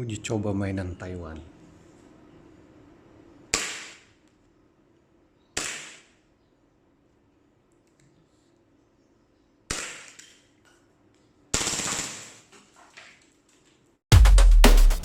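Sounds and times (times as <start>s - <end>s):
loud music with steady beat: 14.1s - 15.0s.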